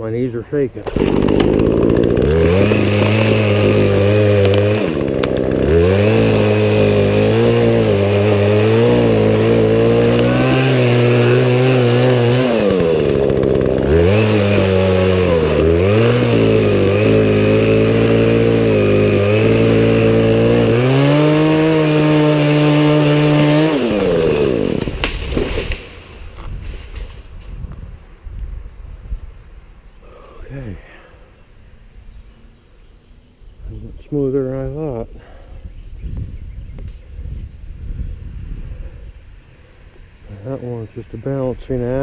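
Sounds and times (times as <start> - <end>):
chainsaw cutting at high revs: 0.8 - 26.5.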